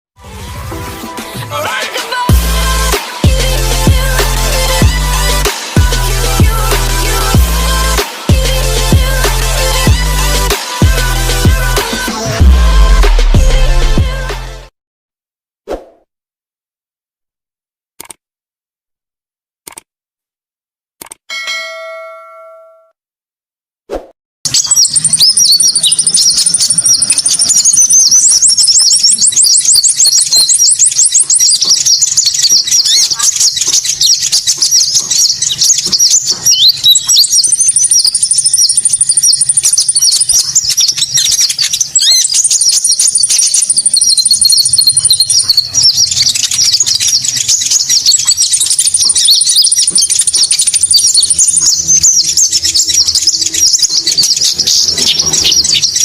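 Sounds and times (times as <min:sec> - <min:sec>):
long high bird trill: 0:24.5 - 0:56.0
rapid high bird chirping: 0:24.5 - 0:56.0.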